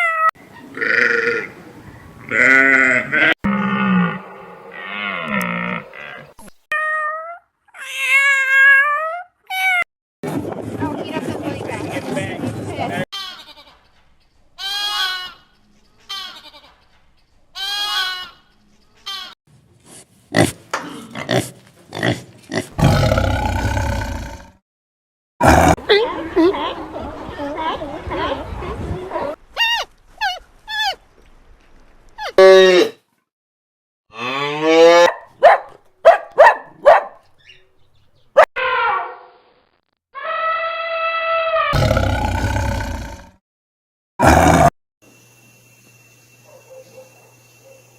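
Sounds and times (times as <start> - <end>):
livestock bleating: 2.3 - 4.1.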